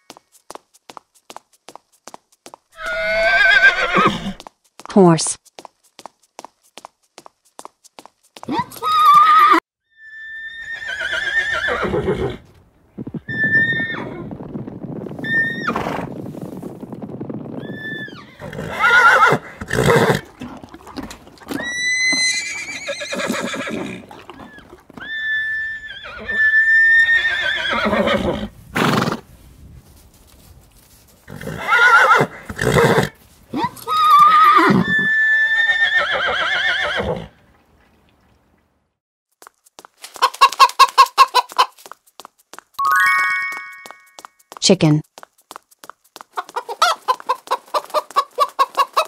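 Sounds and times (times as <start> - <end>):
horses neighing and whinnying: 2.8 - 4.4, 8.6 - 14.2, 17.6 - 29.2, 31.2 - 37.4.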